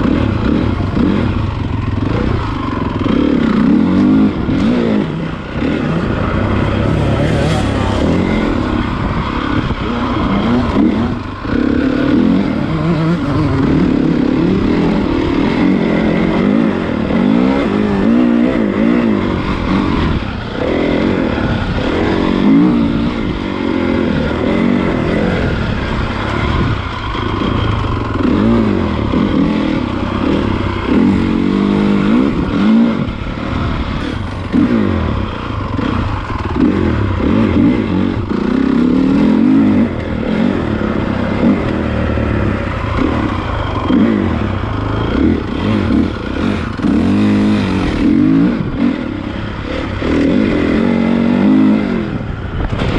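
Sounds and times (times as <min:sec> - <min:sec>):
motocross bike engine revving: 0:00.0 - 0:52.9.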